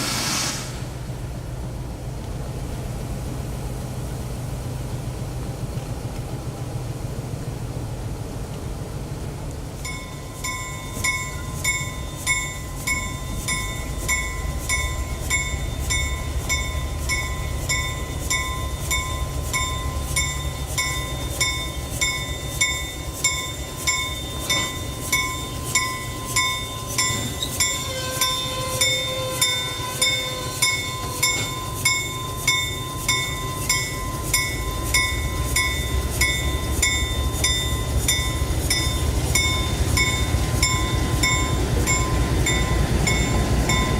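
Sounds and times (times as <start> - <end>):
passing train rumble: 0.0 - 43.9
railroad crossing bell ringing: 9.8 - 43.9.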